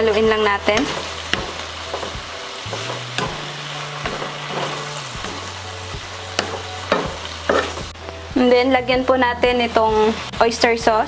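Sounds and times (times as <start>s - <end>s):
spatula tapping pan: 0.0s - 7.9s
chicken sizzling in hot oil: 0.0s - 8.0s, 8.8s - 11.0s
wooden spatula scraping pan: 0.0s - 8.0s.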